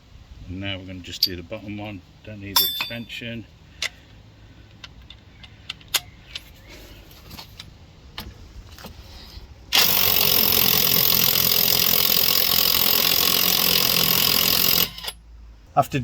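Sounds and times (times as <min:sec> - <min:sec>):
impact driver hammering: 0:09.8 - 0:15.2.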